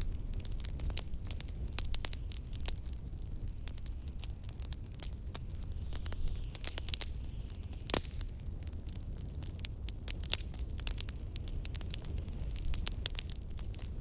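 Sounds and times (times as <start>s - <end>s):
fireplace crackling: 0.0s - 14.0s
blizzard wind rumble: 8.5s - 14.0s.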